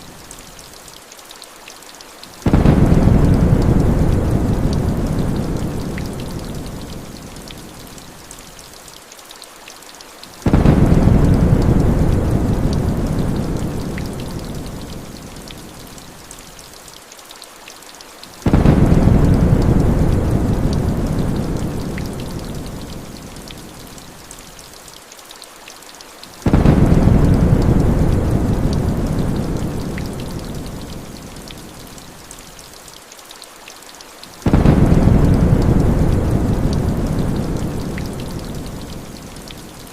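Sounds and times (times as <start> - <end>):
steady rain: 0.0 - 39.9
rolling thunder: 2.4 - 6.9, 10.5 - 14.9, 18.5 - 22.5, 26.5 - 31.0, 34.5 - 39.0.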